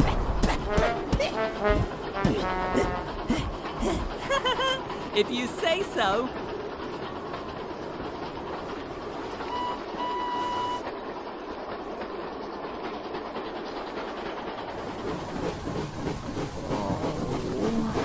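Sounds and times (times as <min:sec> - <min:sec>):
steam locomotive rattling on rails: 0:00.0 - 0:18.0
high train whistle: 0:09.4 - 0:10.8.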